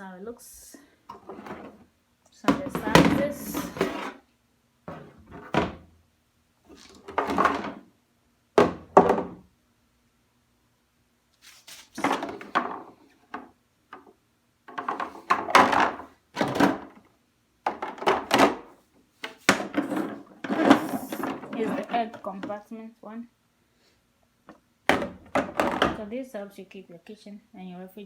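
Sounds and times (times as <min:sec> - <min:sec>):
plastic bins knocking: 0:02.4 - 0:04.2, 0:04.9 - 0:05.9, 0:06.7 - 0:07.9, 0:08.6 - 0:09.5, 0:12.0 - 0:14.0, 0:14.7 - 0:22.7, 0:24.5 - 0:26.1.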